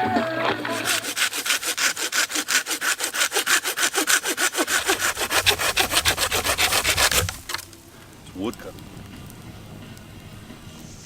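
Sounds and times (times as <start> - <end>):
hand saw cutting wood: 0.7 - 7.7.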